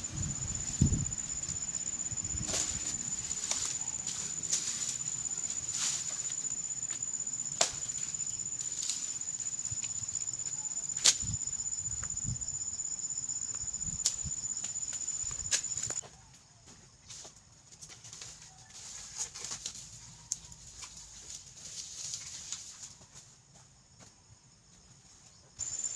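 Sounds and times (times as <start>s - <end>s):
high-pitched insect trill: 0.0s - 16.0s, 25.6s - 25.9s.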